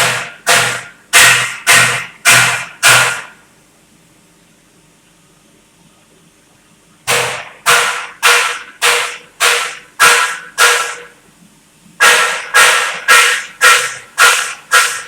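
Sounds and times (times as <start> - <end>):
welding arc hissing in pulses: 12.0 - 15.0.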